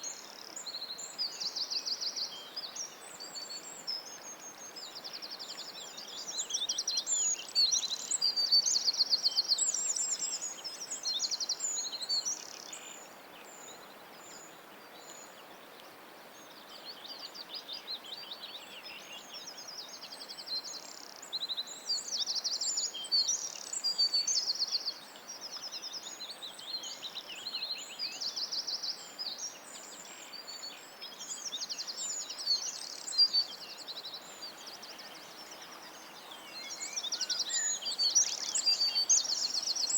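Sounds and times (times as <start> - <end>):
birds singing: 16.4 - 39.9.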